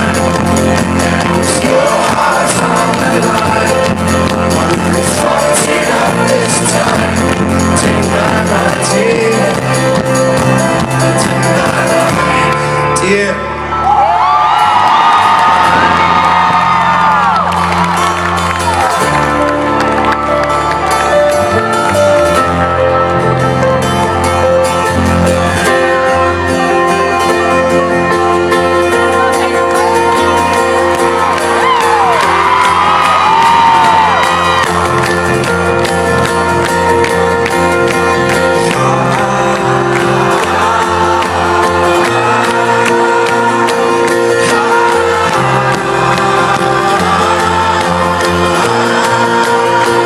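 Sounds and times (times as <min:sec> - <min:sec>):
folk-rock band playing: 0:00.0 - 0:50.0
audience whoops and shouts: 0:13.7 - 0:21.4, 0:29.3 - 0:35.6.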